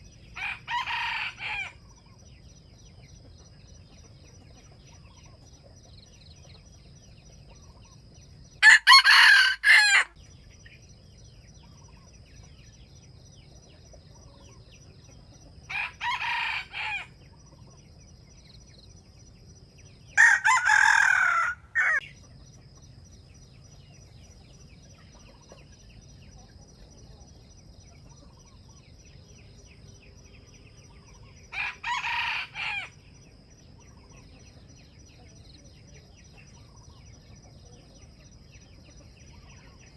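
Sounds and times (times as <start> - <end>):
near rooster crowing: 0.4 - 1.8, 8.6 - 10.2, 15.7 - 17.2, 20.2 - 22.1, 31.5 - 33.0
distant rooster crowing: 0.4 - 1.9, 8.6 - 10.2, 15.7 - 17.2, 20.2 - 22.1, 31.5 - 33.0.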